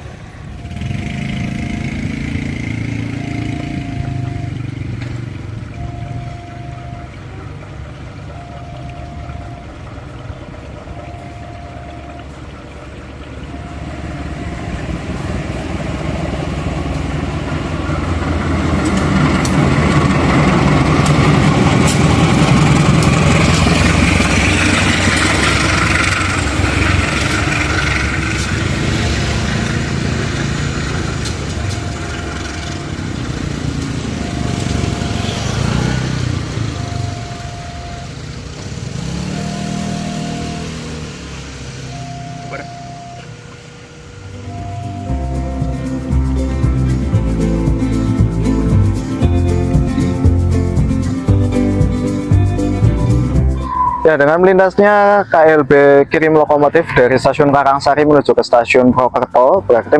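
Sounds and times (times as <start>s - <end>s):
short repeating tone: 0.0s - 7.6s, 8.2s - 12.6s, 13.4s - 16.1s, 21.2s - 38.3s, 38.9s - 41.1s, 41.8s - 43.4s, 44.3s - 46.4s, 53.6s - 54.4s
wheels clicking on rails: 0.0s - 53.4s
locomotive engine passing: 0.0s - 59.9s.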